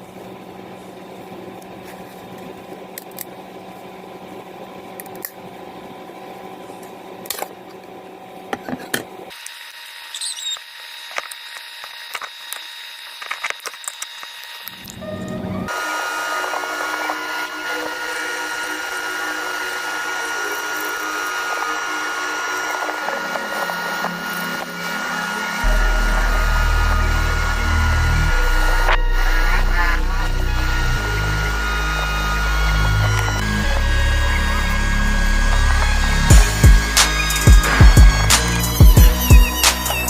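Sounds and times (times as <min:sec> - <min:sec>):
steady background hum: 0:00.0 - 0:40.0
steady tones: 0:14.8 - 0:40.0.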